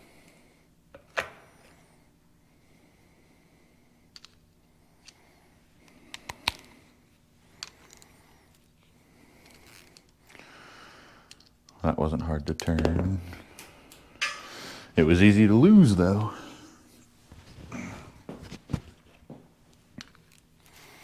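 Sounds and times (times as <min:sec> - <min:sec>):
hand tools clicking and tapping: 0:12.6 - 0:14.5.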